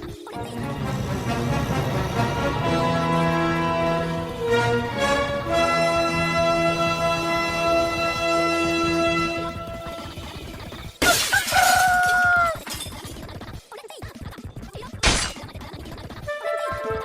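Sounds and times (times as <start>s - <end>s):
glass shattering crash: 11.0s - 13.2s, 15.0s - 15.4s.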